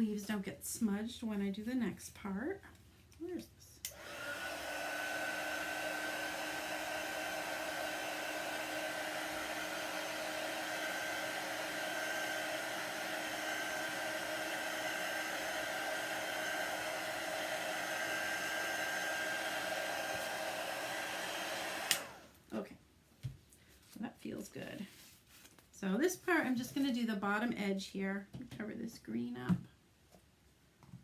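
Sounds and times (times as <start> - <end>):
hair dryer blowing: 3.8 - 22.4.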